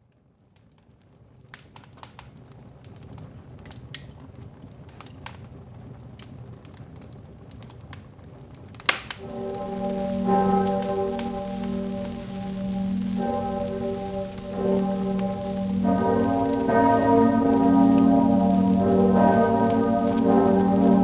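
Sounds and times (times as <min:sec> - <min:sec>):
crackling and popping: 0:00.1 - 0:21.0
low rumble: 0:09.2 - 0:21.0.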